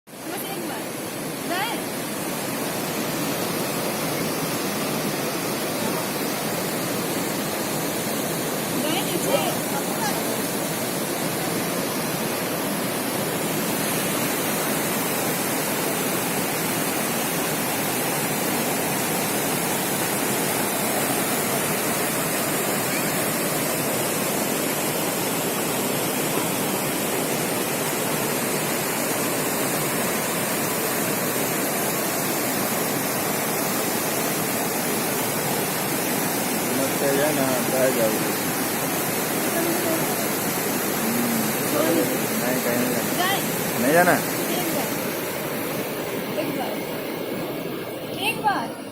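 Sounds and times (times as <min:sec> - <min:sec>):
water rushing: 0:00.1 - 0:48.9.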